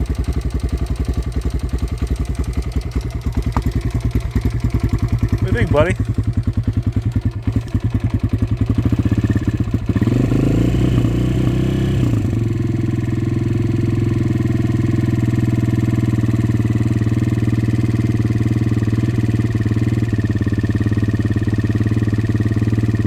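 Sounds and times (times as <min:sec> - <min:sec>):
dirt bike engine idling and revving: 0:00.0 - 0:23.0.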